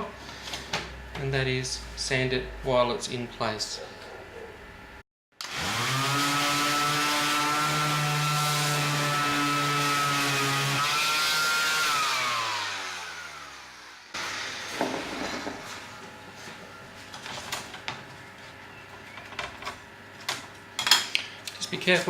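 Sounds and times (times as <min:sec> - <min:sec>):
electric sander spinning down: 0:05.4 - 0:15.6.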